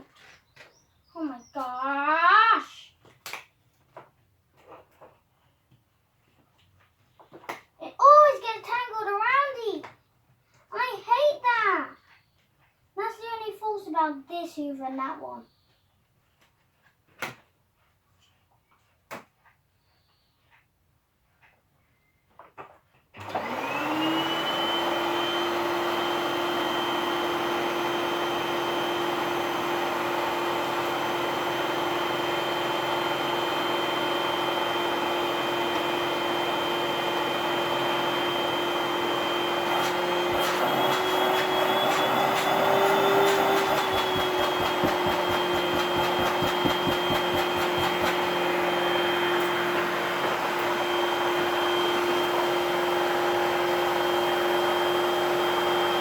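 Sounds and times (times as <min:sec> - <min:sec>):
vacuum cleaner motor whining: 0:23.2 - 0:56.0.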